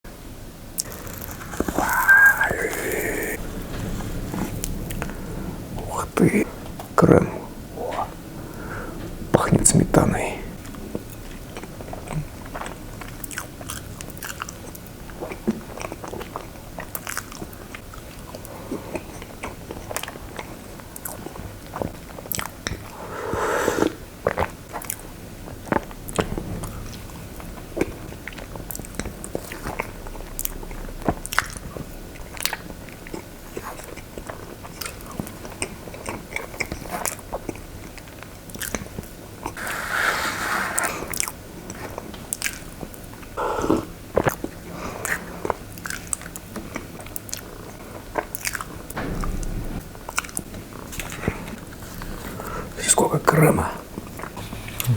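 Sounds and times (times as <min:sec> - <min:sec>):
mouth clicks: 0:00.8 - 0:03.4, 0:54.4 - 0:54.9
person chewing cake: 0:00.8 - 0:03.4, 0:11.2 - 0:22.9.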